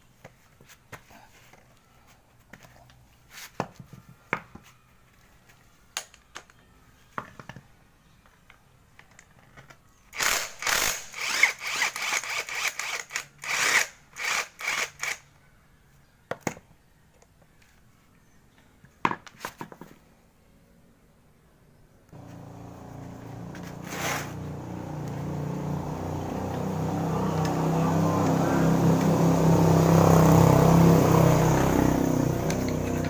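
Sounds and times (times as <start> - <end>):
rough rubbing strokes: 22.2 - 25.0.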